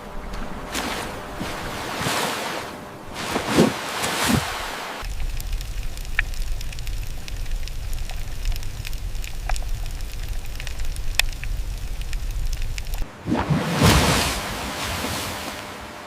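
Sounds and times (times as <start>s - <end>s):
low rumble: 4.3s - 16.0s
sharp crackling clicks: 5.0s - 13.0s.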